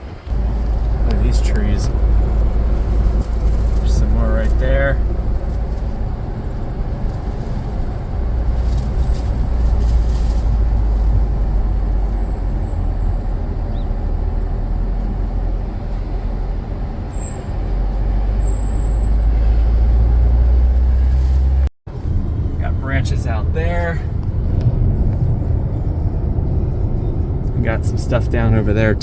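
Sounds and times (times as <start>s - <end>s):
car wind and road noise: 0.0s - 29.0s.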